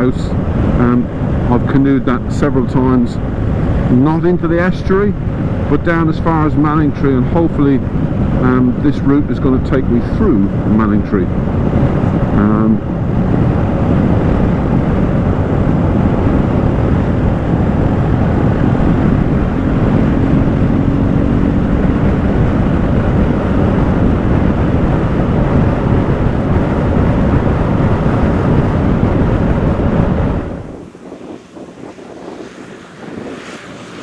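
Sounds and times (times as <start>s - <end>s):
wind noise on microphone: 0.0s - 34.0s
motorcycle engine running: 11.4s - 32.2s.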